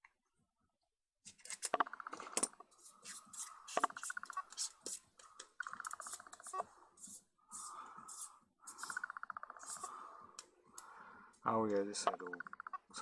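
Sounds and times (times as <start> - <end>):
lens parts clinking and scraping: 1.3 - 10.0.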